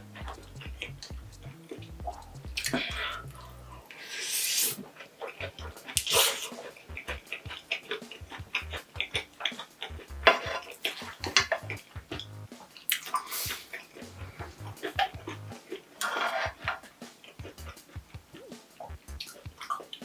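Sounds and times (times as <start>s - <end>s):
person chewing noodles: 1.6s - 17.8s
wet mouth smacks and clicks: 1.7s - 3.4s, 12.8s - 14.4s
short hissing breath: 3.9s - 4.8s, 6.0s - 6.8s, 13.2s - 13.8s.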